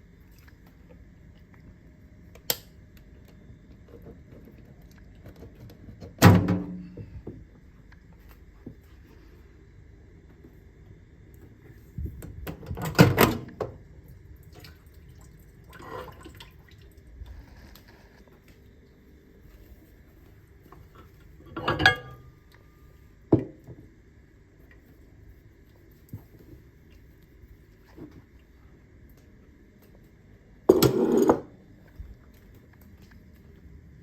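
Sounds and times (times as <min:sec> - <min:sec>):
microwave oven humming: 0:00.0 - 0:34.0.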